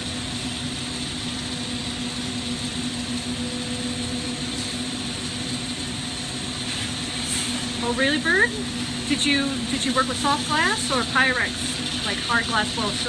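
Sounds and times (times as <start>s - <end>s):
constant low hum: 0.0s - 13.0s
torch flame roaring: 0.0s - 13.0s.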